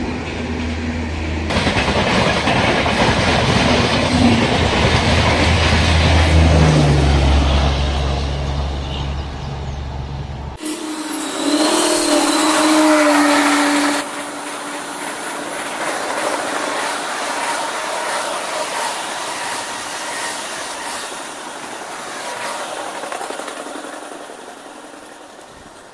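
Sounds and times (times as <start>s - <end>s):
train coaches rushing past: 0.0s - 25.9s
train horn blast: 10.6s - 15.3s.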